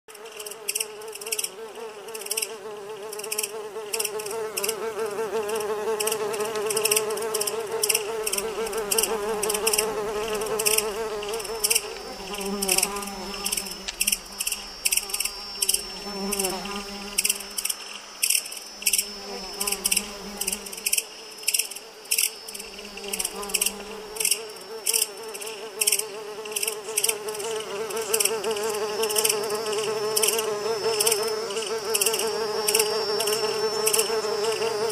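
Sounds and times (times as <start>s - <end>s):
buzz of locust wings: 0.1s - 34.9s
sharp high clicks: 5.9s - 27.2s.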